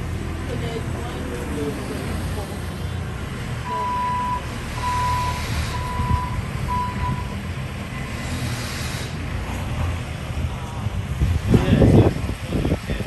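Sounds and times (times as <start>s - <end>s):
low engine rumble: 0.0s - 13.0s
reversing alarm beeping: 3.6s - 7.4s.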